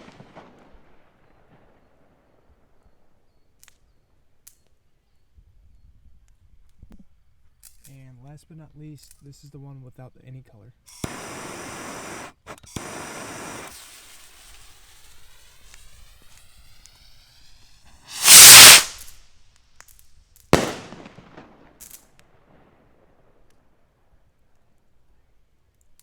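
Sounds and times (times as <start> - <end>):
firework bangs: 0.0 - 2.6, 11.0 - 19.1, 20.6 - 23.4
firework rocket launching hiss: 10.9 - 22.0.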